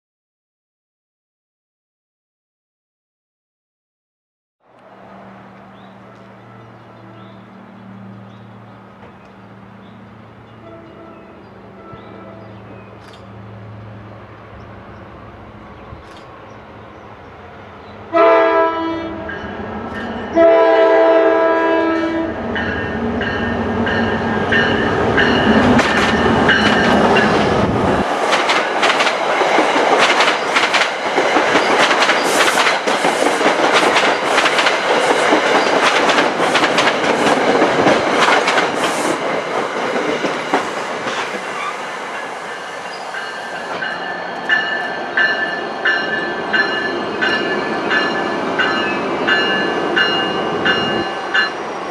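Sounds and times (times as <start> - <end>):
locomotive rumbling past: 4.7 - 51.9
train horn: 6.0 - 7.5, 10.5 - 12.7, 18.1 - 19.5, 20.3 - 22.8
coaches clattering over rail joints: 23.2 - 51.6.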